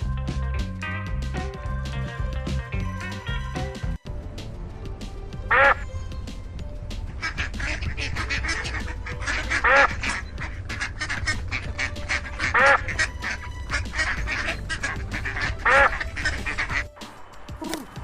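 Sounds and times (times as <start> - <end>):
waterfowl calling: 5.5 - 5.8, 7.1 - 18.0.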